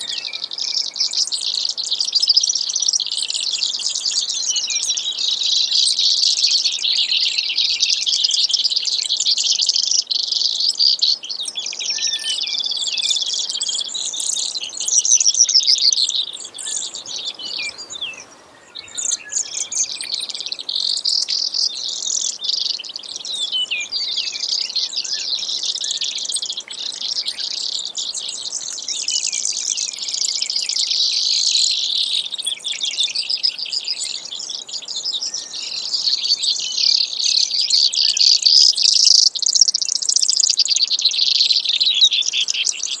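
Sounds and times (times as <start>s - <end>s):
sparrow singing trills: 0.0s - 43.0s.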